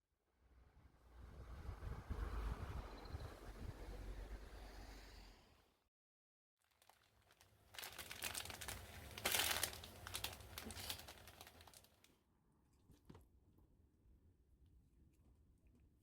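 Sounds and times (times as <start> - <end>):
crinkling and rustling: 6.6 - 13.2.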